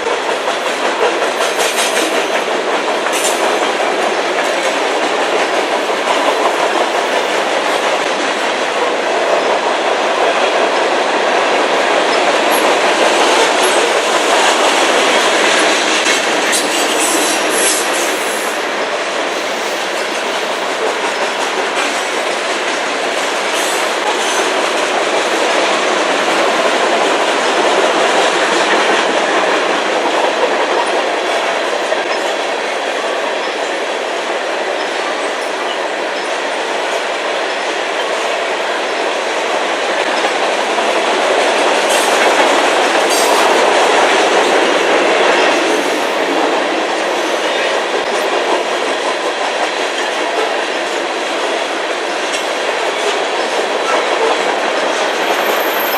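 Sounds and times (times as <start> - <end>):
wheels clicking over rail joints: 0.0 - 34.3.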